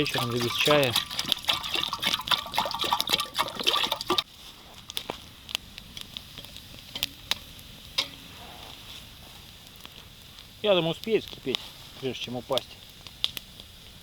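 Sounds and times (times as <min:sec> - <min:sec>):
water pouring into a kettle: 0:00.0 - 0:04.2.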